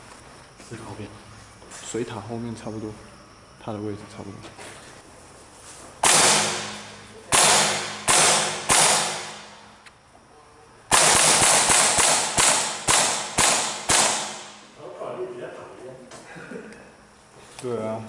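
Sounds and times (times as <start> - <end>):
airsoft gun shots: 6.0 - 9.7, 10.9 - 14.7.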